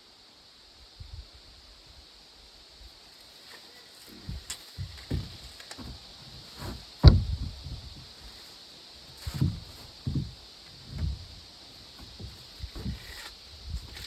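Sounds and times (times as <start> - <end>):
dull thuds and knocks: 4.1 - 14.0.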